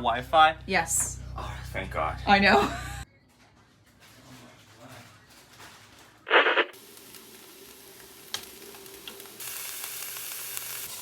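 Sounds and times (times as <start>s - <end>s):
rice sizzling in a pan: 6.8s - 11.0s.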